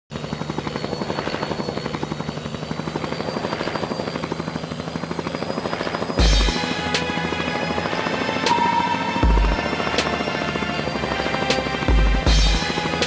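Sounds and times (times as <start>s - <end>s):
helicopter rotor chopping: 0.1s - 13.0s
low hum: 0.3s - 12.8s
faint high whine: 7.6s - 11.0s.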